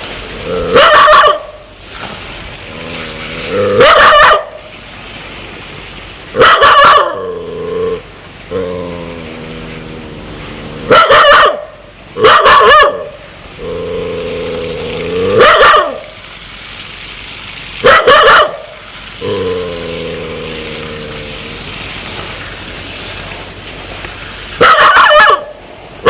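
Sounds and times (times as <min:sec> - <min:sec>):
dog growling: 0:00.4 - 0:00.9, 0:02.6 - 0:04.2, 0:07.1 - 0:11.0, 0:13.6 - 0:15.5, 0:19.2 - 0:21.9
dog barking loudly: 0:00.5 - 0:01.6, 0:03.6 - 0:04.7, 0:06.3 - 0:07.3, 0:10.8 - 0:13.2, 0:15.2 - 0:16.1, 0:17.8 - 0:18.8, 0:24.6 - 0:25.6.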